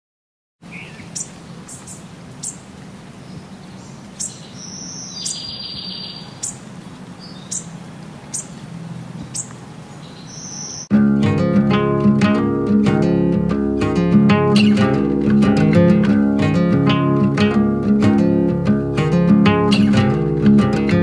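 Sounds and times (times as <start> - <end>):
birds chirping: 0.6 - 10.9.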